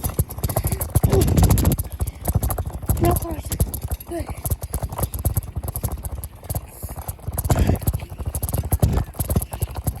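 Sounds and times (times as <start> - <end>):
wind buffeting microphone: 0.0 - 6.2
bicycle rattling over rough ground: 0.0 - 10.0.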